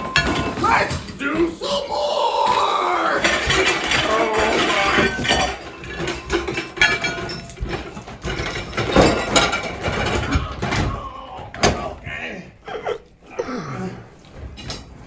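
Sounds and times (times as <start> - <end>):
dishes clattering: 0.0 - 1.7, 2.4 - 12.0.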